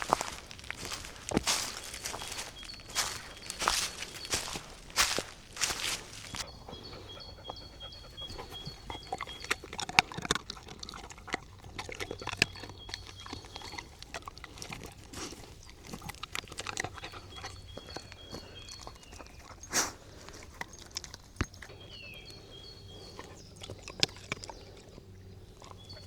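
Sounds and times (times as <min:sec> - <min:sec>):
small crunches: 0:00.0 - 0:06.5, 0:08.3 - 0:21.7
dog snuffling and chewing: 0:00.0 - 0:26.0.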